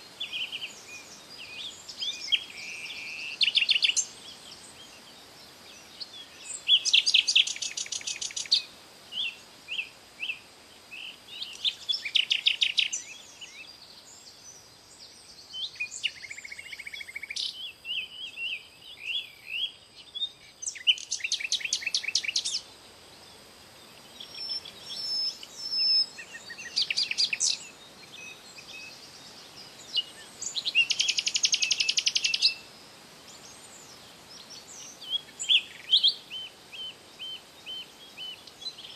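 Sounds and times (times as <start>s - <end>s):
birds chirping and whistling: 24.2s - 29.0s.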